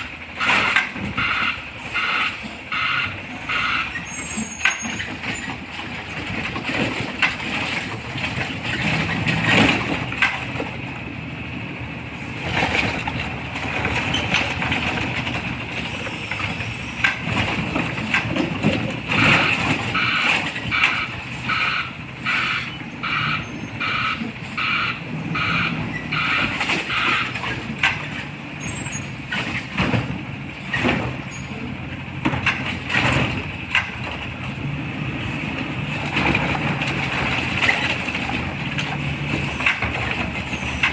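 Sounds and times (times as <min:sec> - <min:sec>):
garbage truck engine running: 0:00.0 - 0:40.9
reversing alarm beeping: 0:00.5 - 0:05.0, 0:18.4 - 0:27.4.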